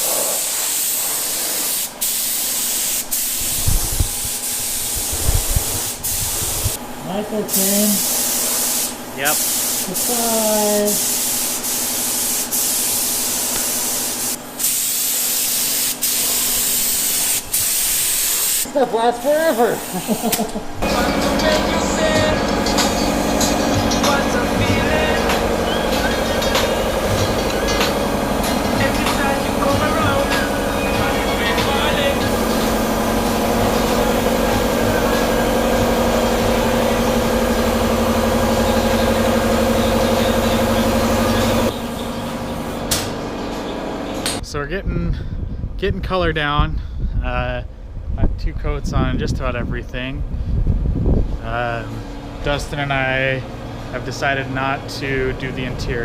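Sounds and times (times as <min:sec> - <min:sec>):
paint spray gun hissing: 0:00.0 - 0:06.8, 0:07.5 - 0:20.6, 0:25.2 - 0:41.8, 0:42.5 - 0:43.0
air compressor running: 0:00.0 - 0:44.4.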